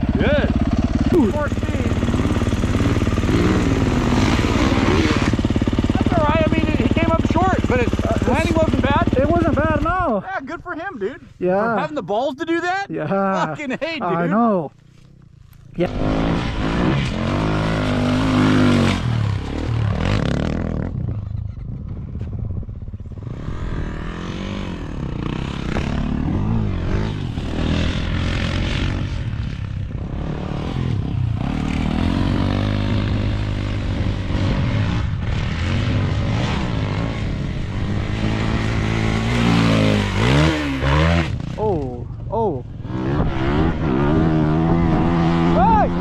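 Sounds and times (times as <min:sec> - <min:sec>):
dirt bike engine revving: 0:00.0 - 0:10.2, 0:14.2 - 0:22.2, 0:23.0 - 0:46.0.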